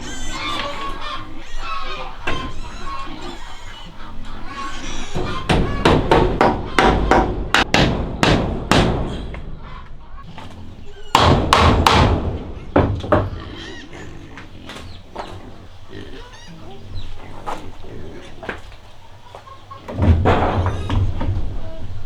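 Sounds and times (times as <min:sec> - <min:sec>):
tool knocking on wood: 0:05.2 - 0:09.0, 0:11.1 - 0:13.4.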